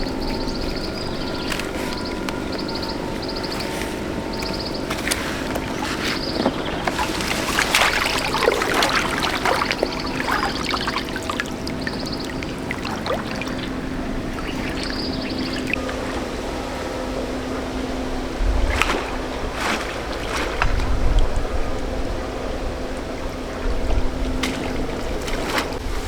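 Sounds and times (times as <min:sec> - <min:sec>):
steady hum: 0:00.0 - 0:26.0
water splashing and pouring: 0:04.8 - 0:16.3.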